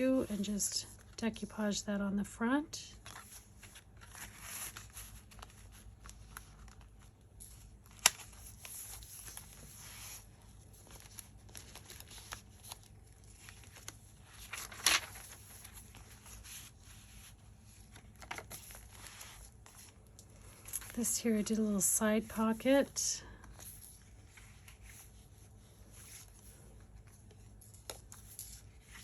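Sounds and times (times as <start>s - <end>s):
paper pages rustling: 2.9s - 21.2s, 23.4s - 29.0s.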